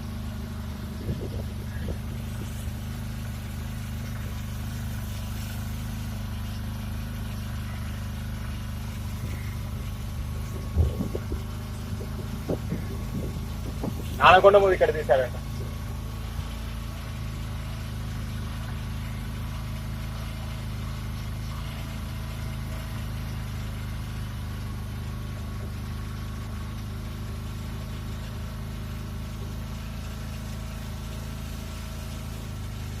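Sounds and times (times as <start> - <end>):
faint steady whine: 0.0 - 27.6
boat engine droning: 0.0 - 33.0.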